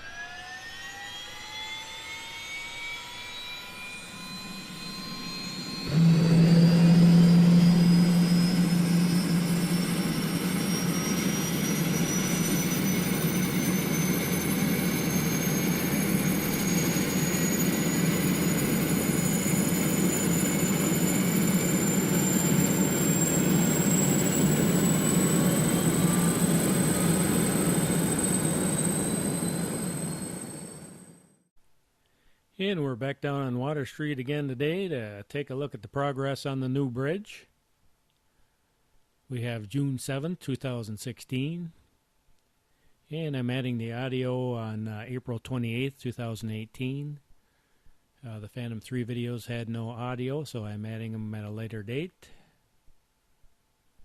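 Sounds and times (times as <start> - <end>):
jet engine whine: 0.0 - 31.5
jet engine low rumble: 0.6 - 31.3.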